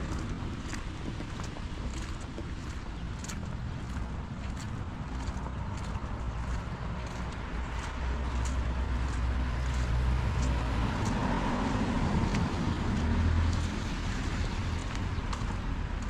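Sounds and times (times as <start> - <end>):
car passing on wet road: 0.0 - 16.0
rain: 7.2 - 16.0.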